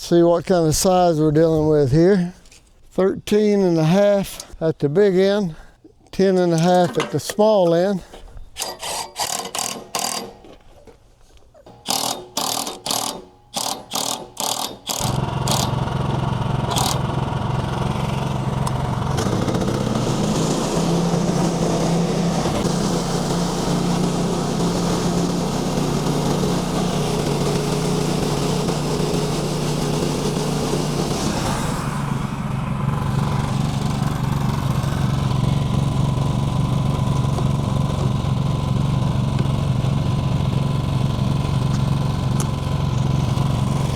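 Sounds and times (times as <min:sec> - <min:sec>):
small engine running: 0:08.6 - 0:10.5, 0:11.7 - 0:43.9.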